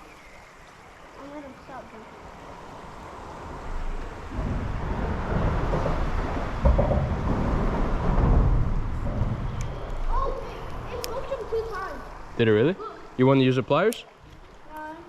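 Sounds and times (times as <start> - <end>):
low noisy microphone rumble: 3.2 - 11.0.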